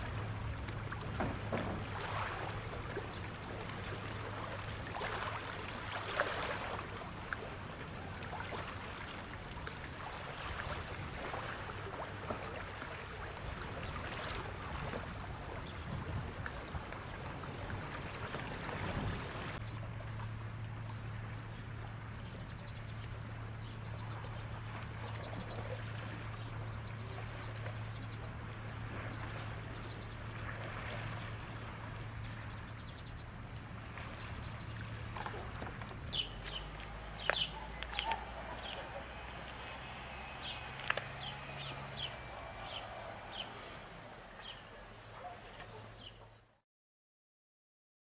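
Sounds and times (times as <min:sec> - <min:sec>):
steady low hum: 0:14.6 - 0:45.9
small birds chirping: 0:35.9 - 0:46.4.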